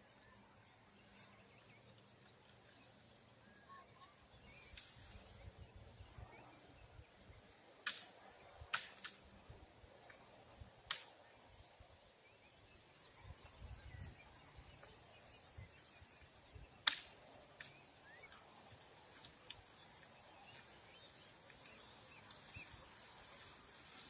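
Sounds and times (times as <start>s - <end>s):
sharp clicks or snaps: 7.8s - 9.5s, 10.8s - 11.2s, 16.8s - 17.8s
faint bird chirps: 11.2s - 24.0s.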